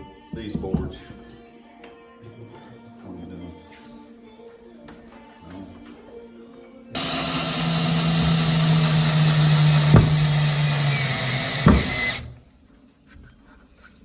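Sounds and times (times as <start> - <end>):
power drill driving screw into wood: 7.0 - 12.4.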